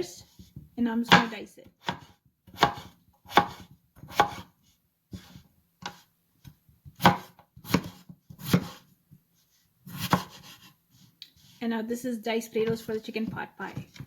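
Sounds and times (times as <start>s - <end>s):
knife chopping potato on board: 0.2s - 4.5s, 5.1s - 8.9s, 9.8s - 11.5s, 12.6s - 14.0s.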